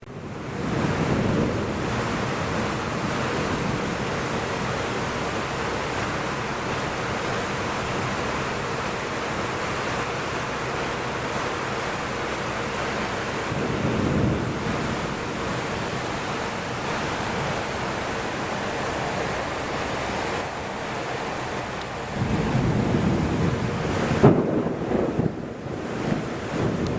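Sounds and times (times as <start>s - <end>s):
heavy rain pouring: 0.0s - 26.9s.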